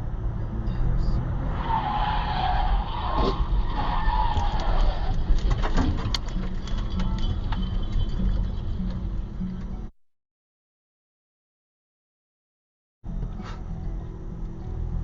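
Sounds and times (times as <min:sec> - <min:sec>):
road and engine rumble: 0:00.0 - 0:09.9, 0:13.0 - 0:15.0
car tyres skidding: 0:01.3 - 0:08.6.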